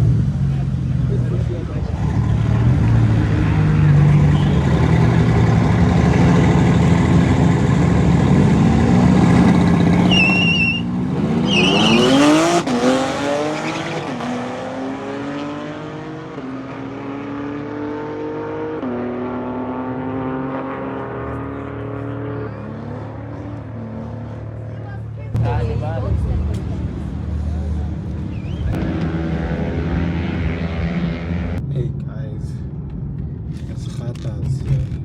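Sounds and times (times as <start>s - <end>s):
car engine revving through gears: 1.8s - 24.7s, 27.6s - 31.6s
tyres squealing: 10.0s - 12.4s.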